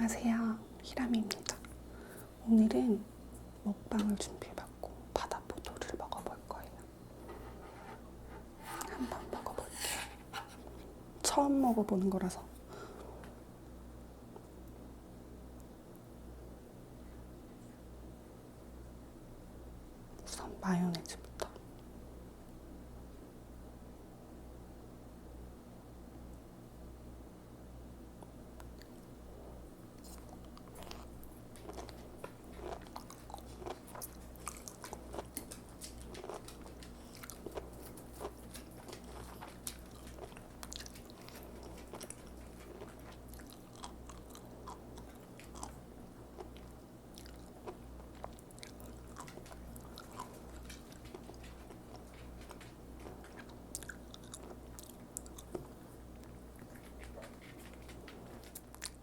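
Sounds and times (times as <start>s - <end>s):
steady low hum: 0.0s - 59.0s
seaweed beads crunching when chewed: 30.0s - 57.4s.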